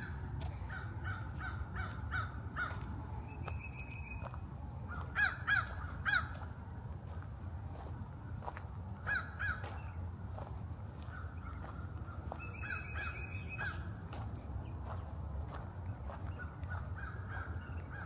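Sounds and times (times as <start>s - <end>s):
steady low rumble: 0.0s - 18.0s
birds calling: 11.0s - 13.9s, 16.0s - 18.0s.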